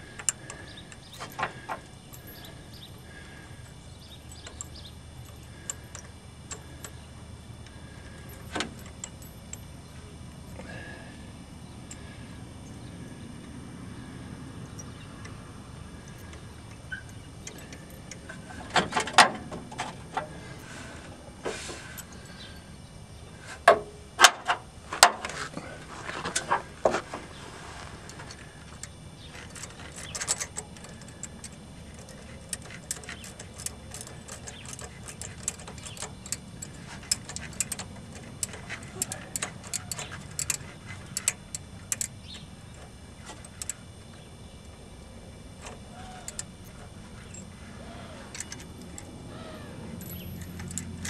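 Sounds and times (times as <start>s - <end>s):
wrench clanking against metal: 4.0s - 7.0s, 29.2s - 43.8s, 50.0s - 51.0s.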